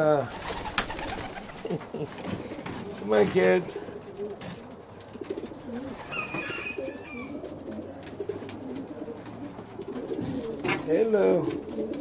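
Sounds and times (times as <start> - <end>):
pigeons cooing: 0.0 - 12.0
pigeon squeak: 5.8 - 7.5.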